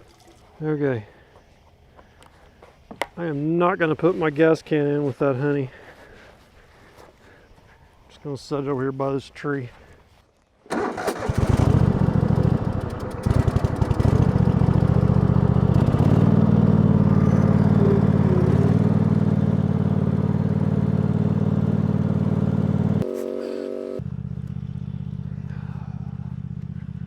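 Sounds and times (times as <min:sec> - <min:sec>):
gasoline engine running: 0:10.7 - 0:27.0.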